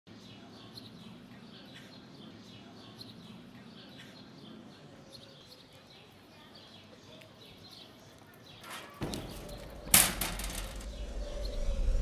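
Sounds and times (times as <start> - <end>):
small birds chirping: 0.1 - 11.8
low city hum: 9.0 - 12.0.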